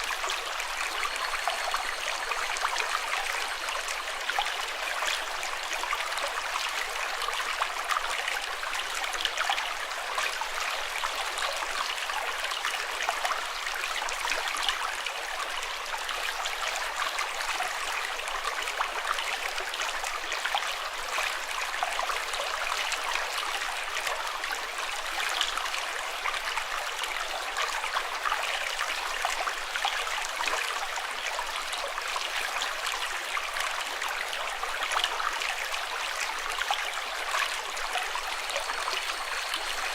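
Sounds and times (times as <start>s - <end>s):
flowing water splashing: 0.0s - 7.9s, 33.3s - 39.9s.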